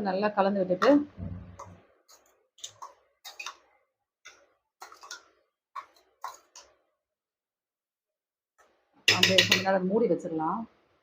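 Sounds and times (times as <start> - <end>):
spoon scraping a bowl: 1.6 - 3.7, 4.3 - 6.8, 9.1 - 9.7.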